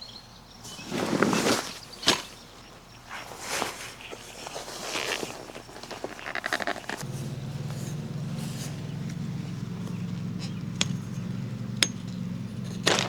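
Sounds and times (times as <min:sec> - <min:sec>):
small motor humming: 0:06.8 - 0:13.0.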